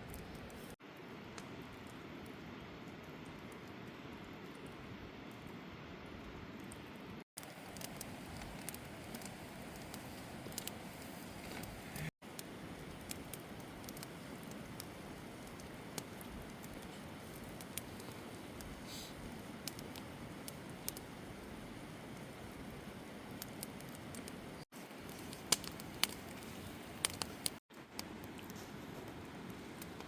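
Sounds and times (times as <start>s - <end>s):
campfire crackling: 0.0s - 30.0s.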